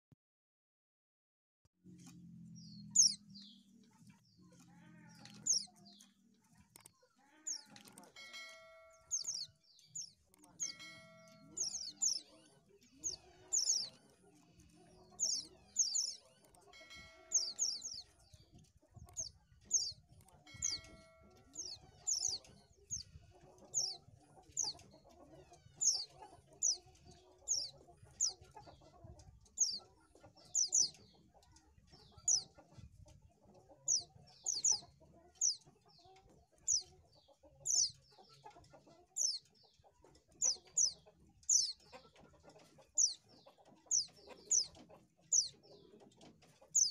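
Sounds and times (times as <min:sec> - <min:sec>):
bird chirping high: 0:02.5 - 0:03.7, 0:05.0 - 0:06.1, 0:07.5 - 0:12.4, 0:16.8 - 0:18.1, 0:19.2 - 0:23.1, 0:40.4 - 0:41.8.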